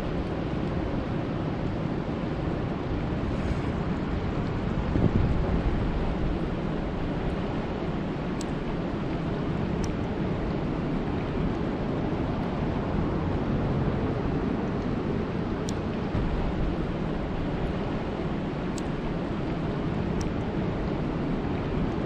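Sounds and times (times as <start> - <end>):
faint high ticks: 8.4 - 8.6.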